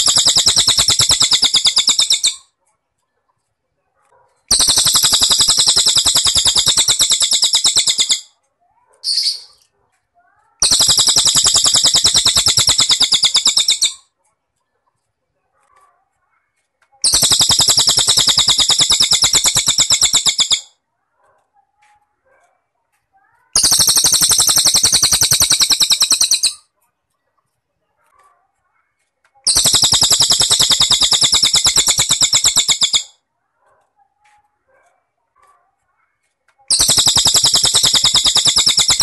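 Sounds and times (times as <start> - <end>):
faint chirps: 0.0 - 3.5, 4.5 - 15.9, 17.0 - 20.8, 23.3 - 26.8, 29.0 - 33.2, 36.2 - 39.0.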